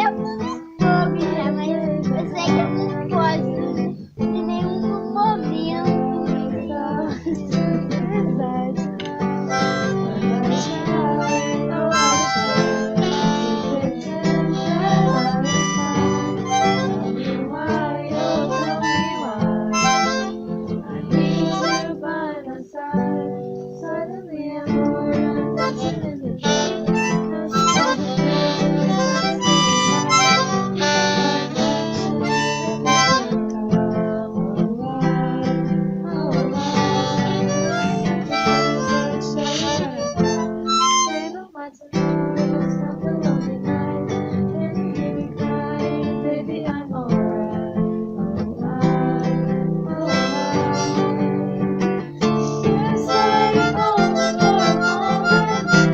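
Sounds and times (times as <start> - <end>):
harmonica playing: 0.0 - 1.7, 9.4 - 22.1, 25.4 - 33.5, 36.1 - 41.5, 48.7 - 55.9
strummed acoustic guitar: 0.0 - 55.9.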